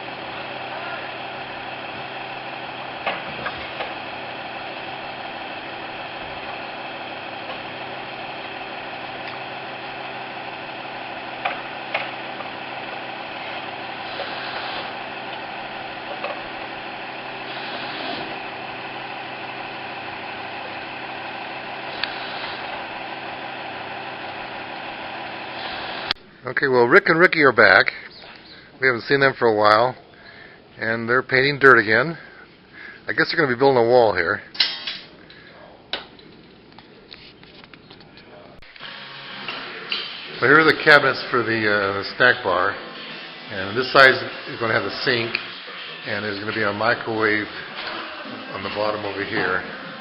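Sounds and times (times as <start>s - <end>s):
engine idling: 0.0s - 26.3s.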